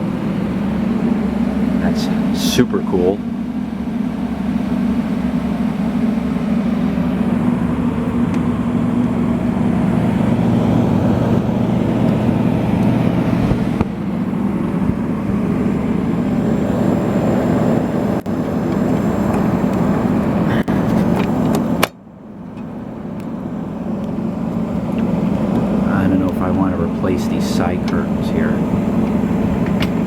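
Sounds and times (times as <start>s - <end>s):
air conditioner blowing and humming: 0.0s - 30.0s.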